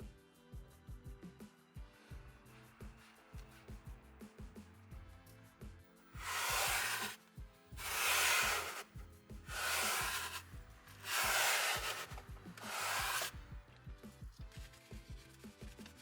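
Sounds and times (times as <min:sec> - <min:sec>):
cleaning tool rubbing car interior: 0:06.2 - 0:07.2, 0:07.8 - 0:08.9, 0:09.5 - 0:10.4, 0:11.0 - 0:13.3.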